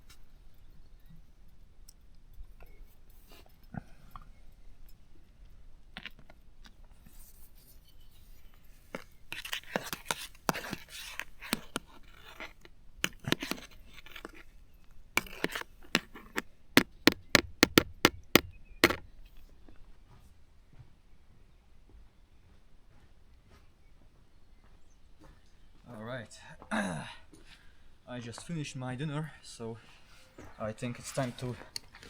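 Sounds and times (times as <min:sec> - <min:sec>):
scraping and rustling: 0:06.0 - 0:19.8
sharp knocks: 0:15.2 - 0:19.1.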